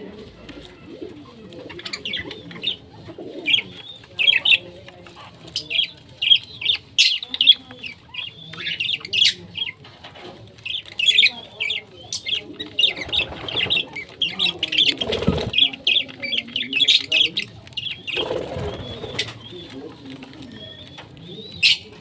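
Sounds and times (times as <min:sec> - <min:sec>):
parrots chirping: 0:10.6 - 0:19.8.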